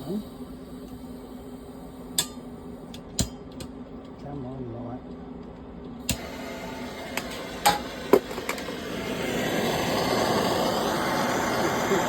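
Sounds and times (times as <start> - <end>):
gas torch igniter clicking: 6.0 - 6.5
torch flame hissing: 6.0 - 12.0.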